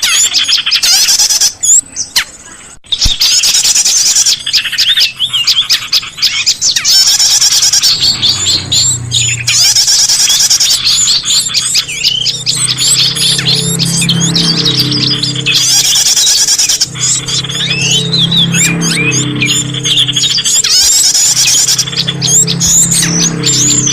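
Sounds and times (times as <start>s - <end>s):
songbirds chirping and twittering: 0.0s - 23.9s
low steady hum: 7.6s - 23.9s.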